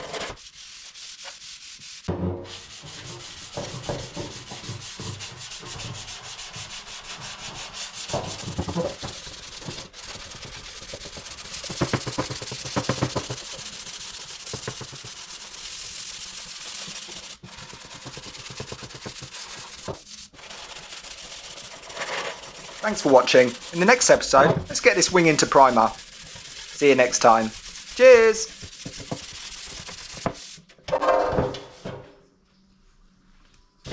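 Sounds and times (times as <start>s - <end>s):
sandpaper rubbing on car body: 0.0s - 24.2s, 24.8s - 30.7s.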